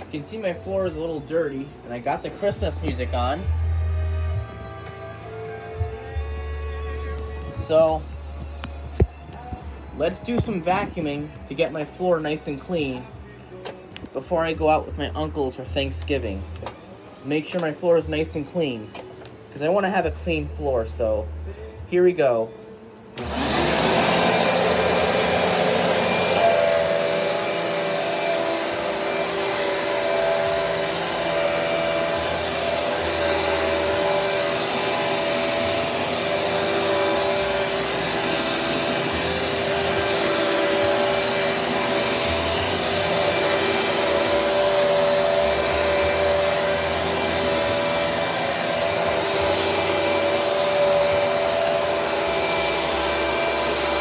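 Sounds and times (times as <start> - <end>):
vacuum cleaner running: 0.0 - 11.2, 23.2 - 54.0.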